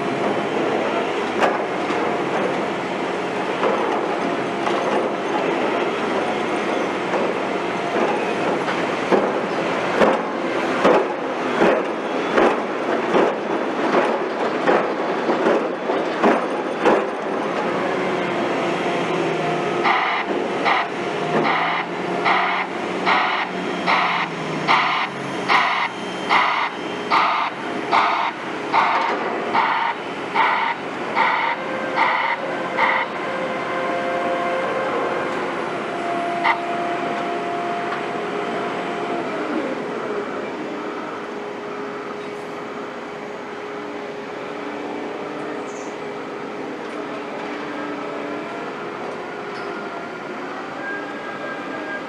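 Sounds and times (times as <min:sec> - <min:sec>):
heavy construction machinery drone: 0:00.0 - 0:52.0
hissy reversing alarm beeps: 0:21.5 - 0:32.4.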